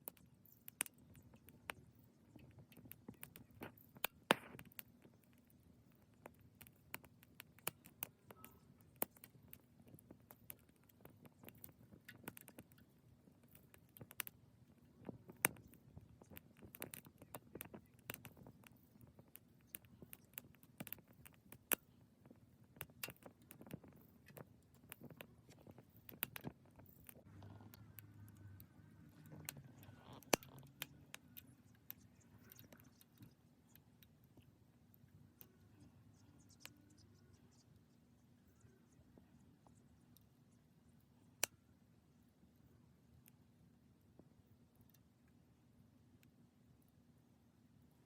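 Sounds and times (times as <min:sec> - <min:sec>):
wood fire crackling: 0:00.0 - 0:37.9.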